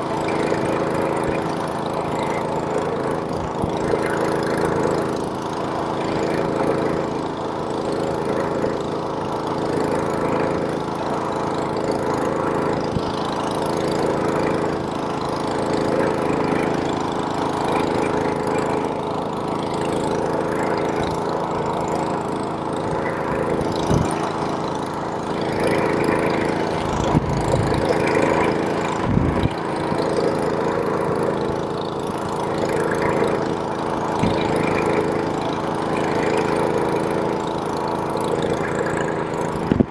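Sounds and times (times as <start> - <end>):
snowblower engine running: 0.0 - 39.9
low thumps: 26.8 - 28.2.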